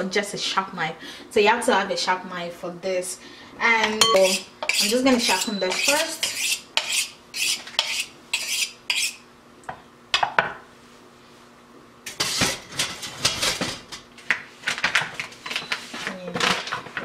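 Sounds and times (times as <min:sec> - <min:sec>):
knife scraping on sharpener: 0:04.0 - 0:09.2.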